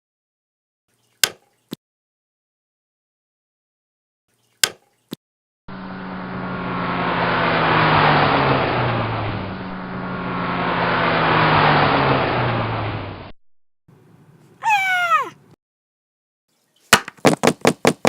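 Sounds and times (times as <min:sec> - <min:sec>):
vehicle engine passing by: 0:05.7 - 0:13.3.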